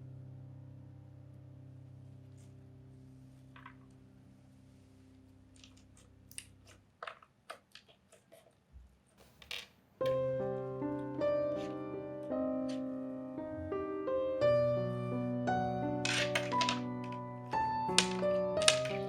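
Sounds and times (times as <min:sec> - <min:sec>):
piano music: 0:00.0 - 0:05.3, 0:10.0 - 0:19.0.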